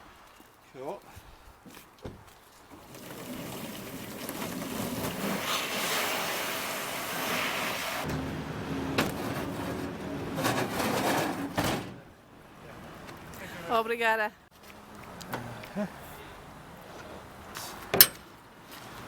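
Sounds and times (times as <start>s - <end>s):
engine running low: 8.1s - 10.7s.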